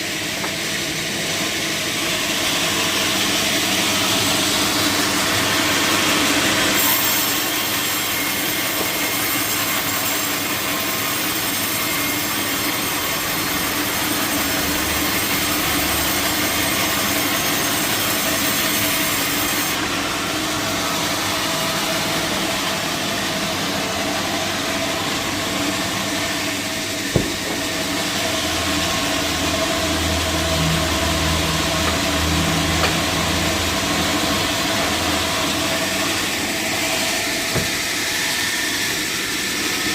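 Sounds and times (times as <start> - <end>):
sawmill saw cutting log: 0.0 - 39.9
sharp knock: 27.1 - 27.6.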